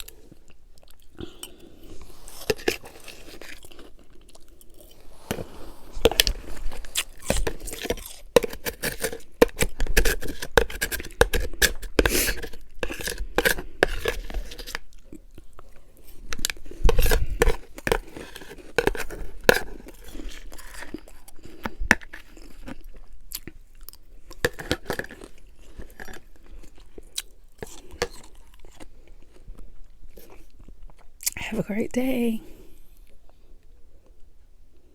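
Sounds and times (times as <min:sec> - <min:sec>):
chewing and crunching ice: 0:00.0 - 0:31.4.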